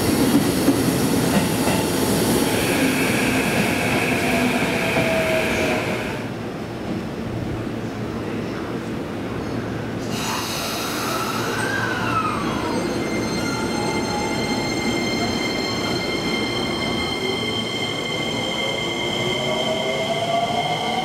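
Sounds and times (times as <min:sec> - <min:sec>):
train wheels rumbling on rails: 0:00.0 - 0:08.0.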